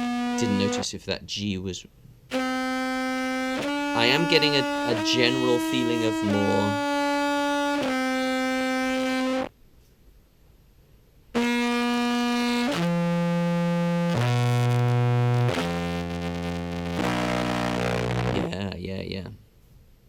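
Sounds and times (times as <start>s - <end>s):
fuzzy contrabass clarinet notes: 0.0s - 0.8s, 2.3s - 9.5s, 11.4s - 18.7s.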